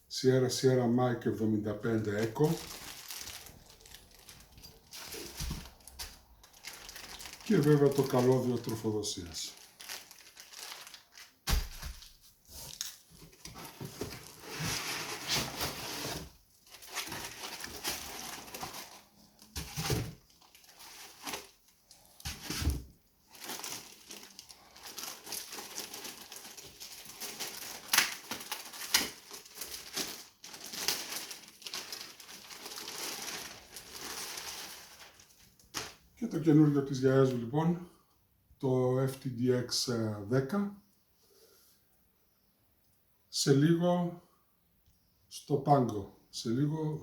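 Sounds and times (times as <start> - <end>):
packaging rustling and crinkling: 2.0 - 36.0.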